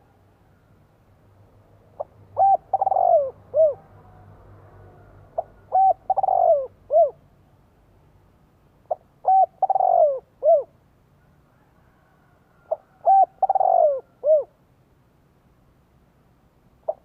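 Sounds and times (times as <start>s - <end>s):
dove cooing: 2.0s - 4.2s, 4.9s - 7.2s, 8.9s - 10.8s, 12.6s - 14.6s.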